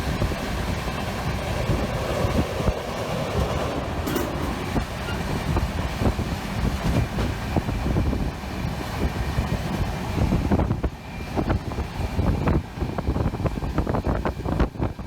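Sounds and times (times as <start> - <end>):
train rumbling on track: 0.0 - 15.0
wheels clattering over rails: 1.2 - 8.0.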